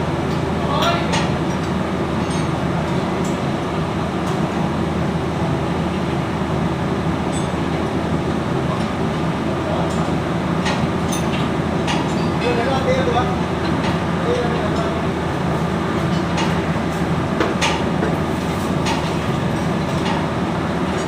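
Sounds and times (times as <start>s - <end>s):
machinery hum and rumble: 0.0s - 21.0s.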